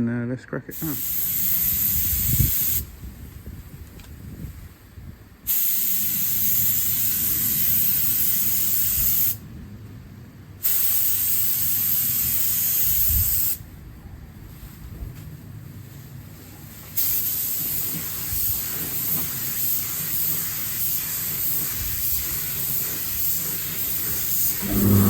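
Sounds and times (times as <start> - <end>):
paint spray gun hissing: 0.8 - 2.9, 5.5 - 9.4, 10.6 - 13.6, 17.0 - 25.0.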